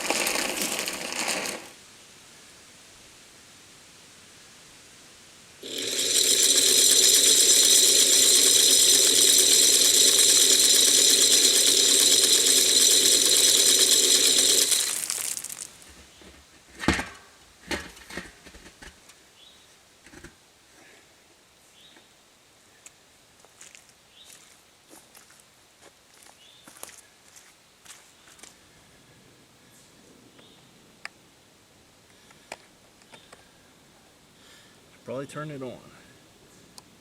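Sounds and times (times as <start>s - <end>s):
corn rattling against metal feeder: 0.0s - 1.8s, 5.6s - 16.1s.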